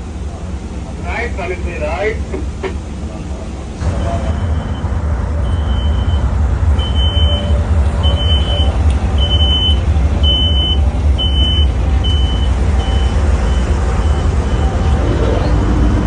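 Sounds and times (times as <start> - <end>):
locomotive engine rumbling: 0.0 - 16.0
high electronic beeps: 4.0 - 15.5.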